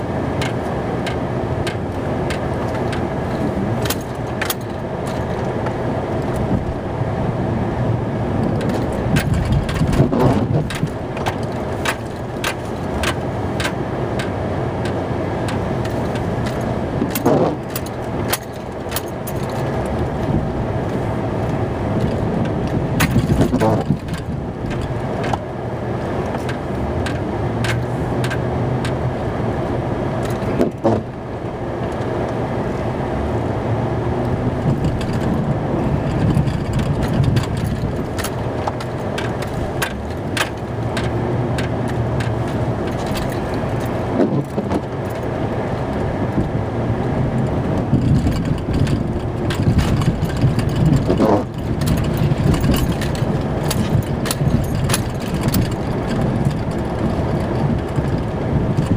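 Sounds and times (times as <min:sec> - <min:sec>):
truck engine running: 0:00.0 - 0:58.9
short clicks and rattles: 0:08.4 - 0:29.0, 0:34.2 - 0:46.6, 0:47.4 - 0:58.9.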